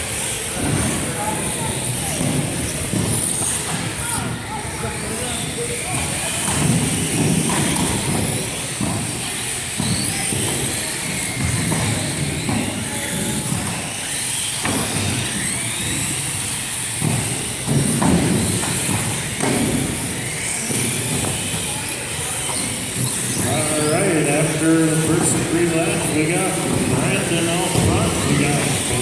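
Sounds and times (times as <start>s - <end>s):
toy car motors whining: 0.0s - 29.0s
thud: 6.4s - 9.1s, 17.0s - 20.1s.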